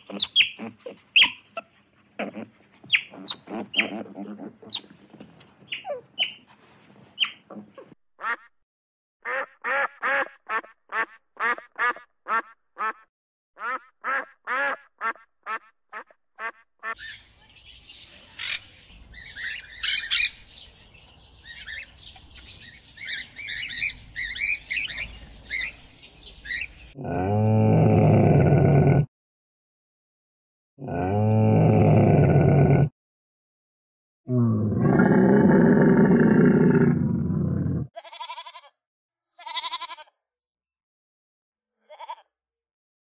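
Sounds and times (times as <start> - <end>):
macaw squawking: 0.0 - 1.4, 2.9 - 4.9, 18.4 - 20.4
camel groaning: 2.2 - 4.7
duck honking: 9.2 - 13.0, 13.6 - 17.0.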